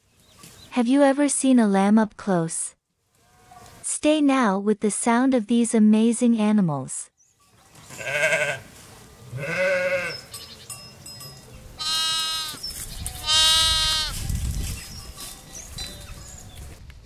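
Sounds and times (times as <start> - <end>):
sheep bleating: 7.9 - 8.7, 9.3 - 10.3, 11.8 - 12.6, 13.2 - 14.2.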